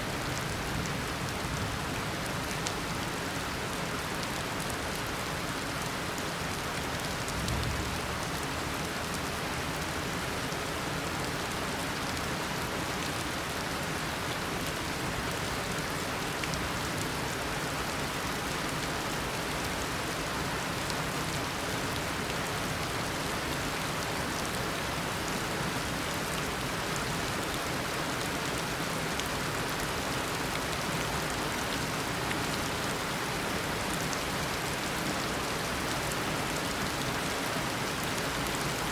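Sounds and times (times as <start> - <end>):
heavy rain hissing on surfaces: 0.0 - 38.9.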